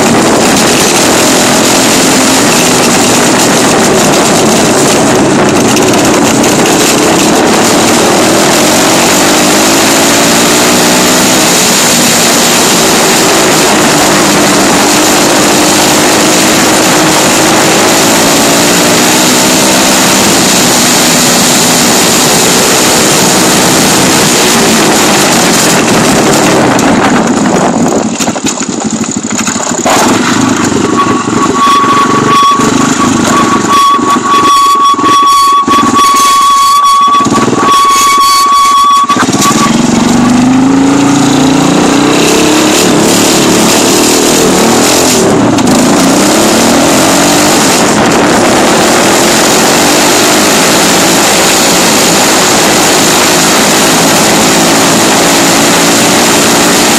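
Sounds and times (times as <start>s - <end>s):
dirt bike engine revving: 0.0s - 28.0s, 28.6s - 56.9s
wind noise on microphone: 0.0s - 56.9s
steady high tone: 30.7s - 43.0s.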